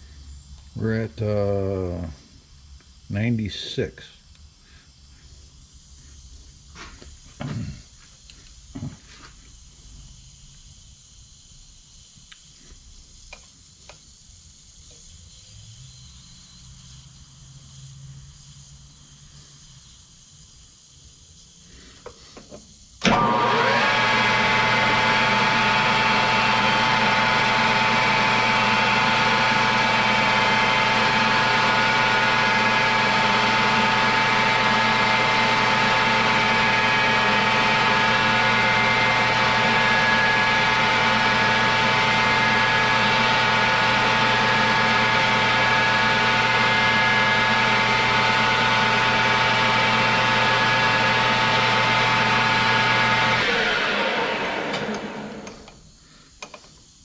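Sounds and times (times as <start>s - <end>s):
metal lathe whining: 23.0s - 55.8s.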